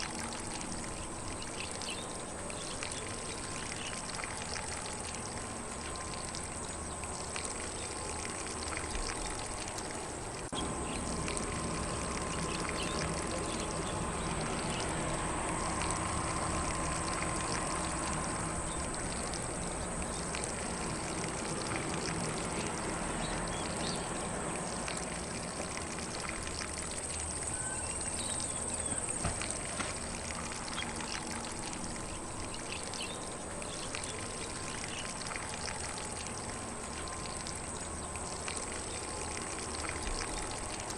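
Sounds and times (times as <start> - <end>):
sprinkler spraying water: 0.0 - 40.9
faint bird chirps: 27.4 - 29.2.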